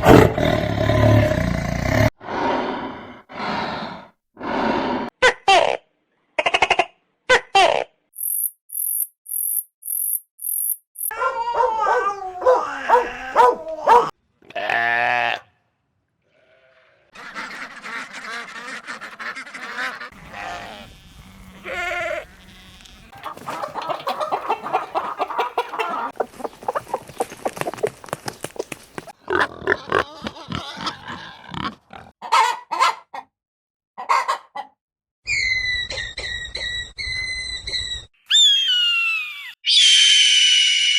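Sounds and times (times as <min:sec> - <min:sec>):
very high chirps: 0:08.2 - 0:11.2, 0:35.3 - 0:40.9
farm animal calls: 0:11.0 - 0:15.5, 0:16.3 - 0:33.2.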